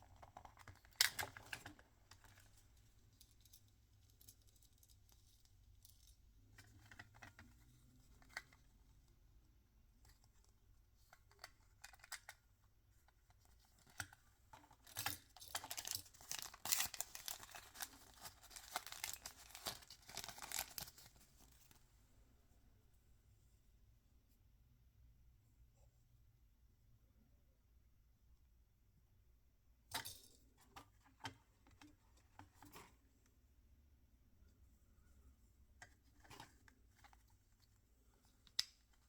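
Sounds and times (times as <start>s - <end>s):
packaging wrapper crinkling and tearing: 14.9s - 21.2s.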